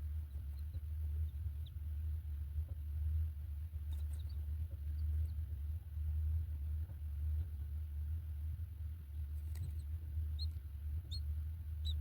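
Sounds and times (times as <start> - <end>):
steady low rumble: 0.0 - 12.0
faint high bird chirps: 9.6 - 12.0.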